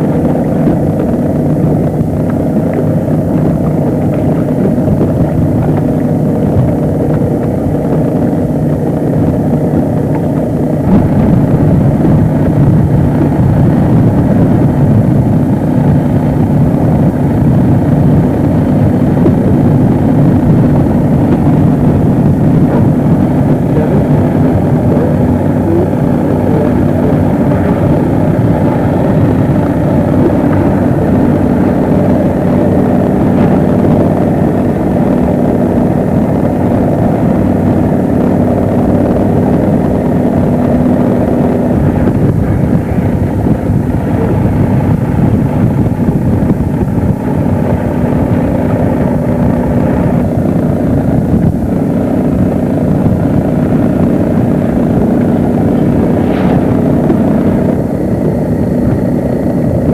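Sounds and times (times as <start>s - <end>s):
motorboat engine running: 0.0s - 59.9s
wind buffeting microphone: 0.0s - 59.9s.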